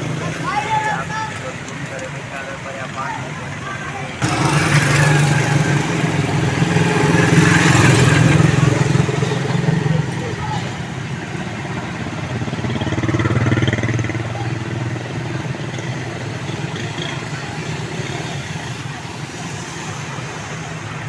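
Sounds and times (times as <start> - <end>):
street noise: 0.0 - 21.0
vehicle engine running: 2.8 - 17.7.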